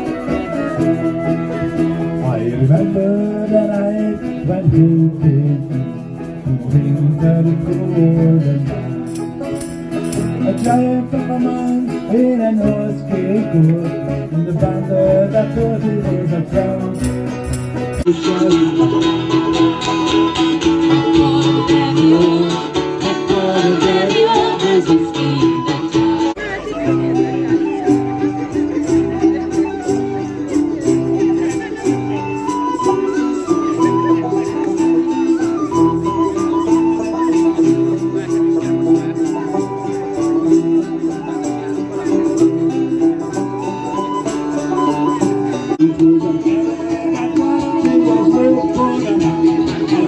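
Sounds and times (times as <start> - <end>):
folk band instrumental: 0.0 - 50.0
guitar accompaniment: 0.0 - 50.0
sustained melody line: 0.0 - 50.0.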